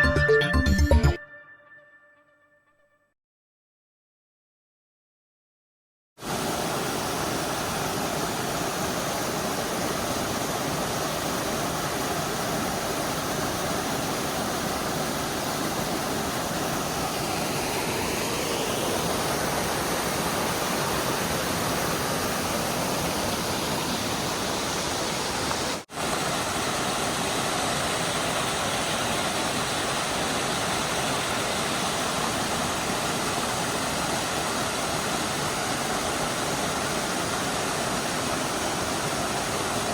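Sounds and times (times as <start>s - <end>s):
mountain stream and waterfall: 6.2s - 39.9s.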